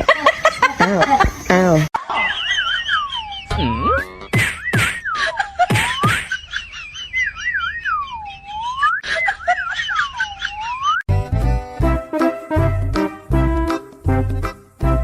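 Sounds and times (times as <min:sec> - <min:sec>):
warbling whistle: 0:06.8 - 0:09.2, 0:10.2 - 0:11.0.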